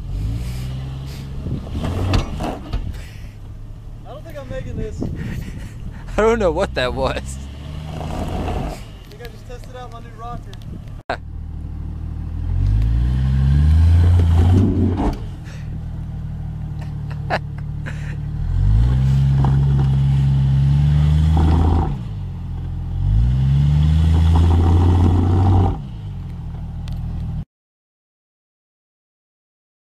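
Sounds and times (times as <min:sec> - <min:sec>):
engine revving hard: 0:06.1 - 0:09.0, 0:12.5 - 0:15.4, 0:18.4 - 0:22.2, 0:23.0 - 0:26.1.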